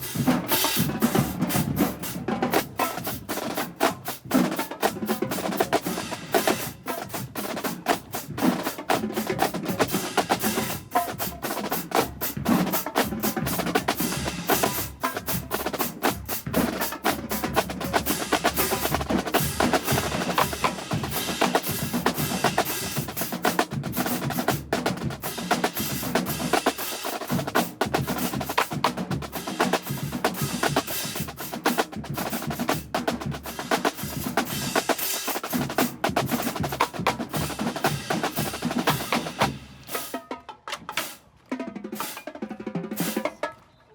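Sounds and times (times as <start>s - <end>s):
snare drum strokes and rolls: 0.0s - 43.8s
bass drums: 8.2s - 39.9s.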